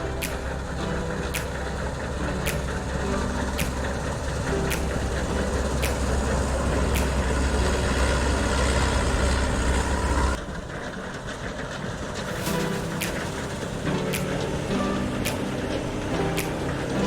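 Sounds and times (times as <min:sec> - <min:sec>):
sharp clicks: 0:00.0 - 0:08.2
combine harvester engine rumble: 0:00.0 - 0:17.0.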